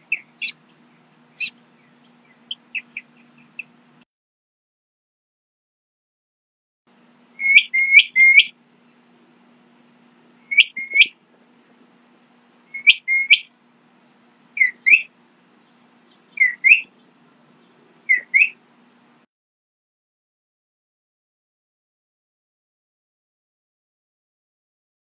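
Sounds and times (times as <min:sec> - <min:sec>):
bird whistling calls: 0:00.0 - 0:00.6, 0:01.4 - 0:03.8, 0:07.4 - 0:08.6, 0:10.4 - 0:11.2, 0:12.7 - 0:13.5, 0:14.6 - 0:17.1, 0:18.0 - 0:18.6.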